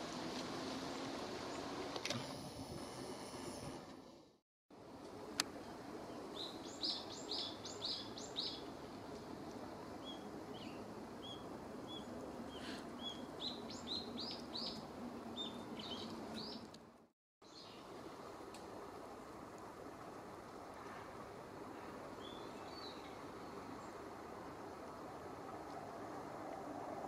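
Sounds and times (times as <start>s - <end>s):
outdoor background hiss: 0.0s - 27.0s
songbird singing: 5.6s - 8.7s, 10.0s - 16.8s, 22.2s - 24.8s.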